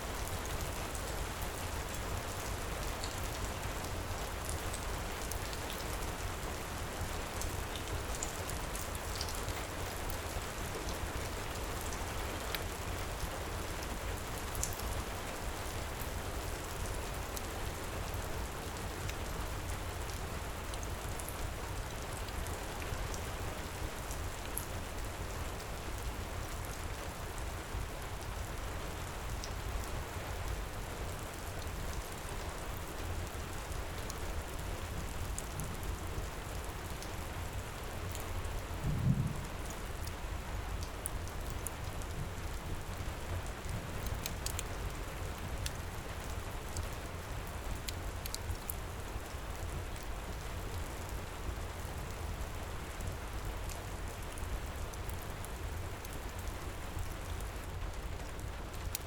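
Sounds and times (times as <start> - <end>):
heavy rain falling: 20.5 - 59.0
wood fire crackling: 43.5 - 44.9.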